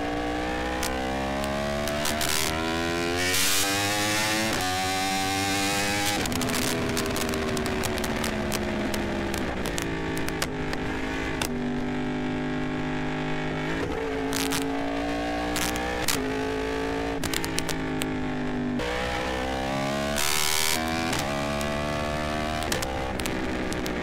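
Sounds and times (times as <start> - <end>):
motorcycle engine running: 0.0 - 24.0
sharp engine pops: 6.0 - 10.8, 14.3 - 14.7, 17.2 - 18.1, 22.6 - 24.0.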